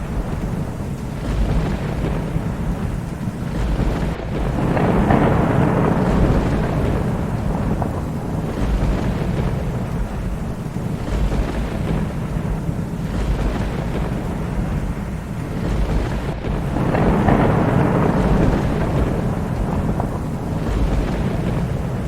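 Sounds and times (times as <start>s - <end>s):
steady rain: 0.0s - 22.0s
thunder rumbling: 0.0s - 22.0s.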